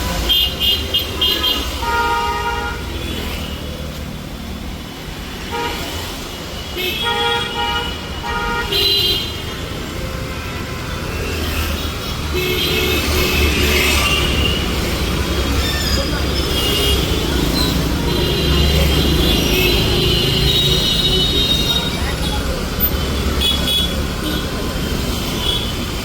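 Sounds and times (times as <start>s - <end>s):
low engine rumble of traffic: 0.0s - 26.0s
vehicle horns honking: 6.7s - 11.1s, 11.9s - 24.6s.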